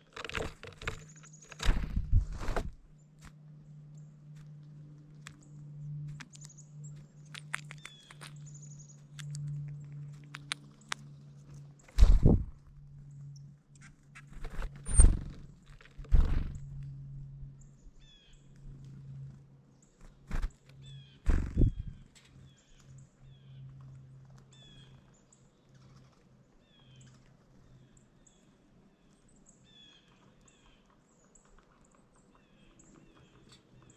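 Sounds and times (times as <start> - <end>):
bird chirping: 5.4 - 13.5, 17.5 - 18.6, 20.8 - 23.7.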